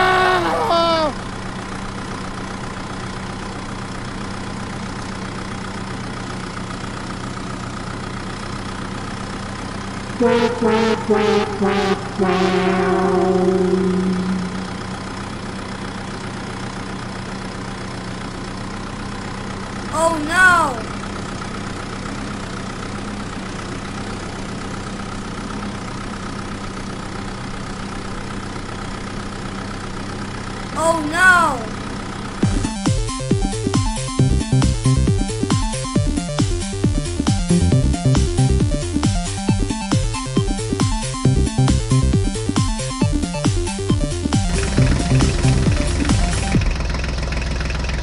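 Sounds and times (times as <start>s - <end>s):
truck engine idling: 0.8s - 19.9s, 44.5s - 48.0s
horn notes playing a tune: 10.2s - 14.8s.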